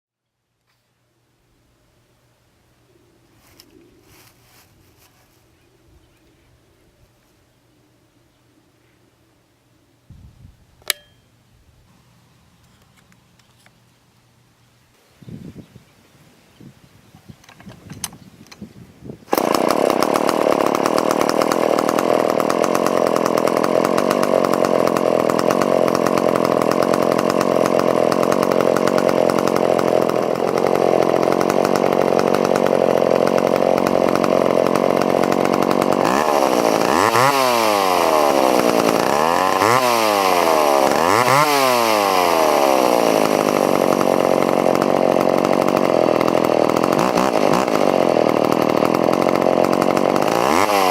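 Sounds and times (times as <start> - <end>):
chainsaw running at high revs: 19.3 - 50.9.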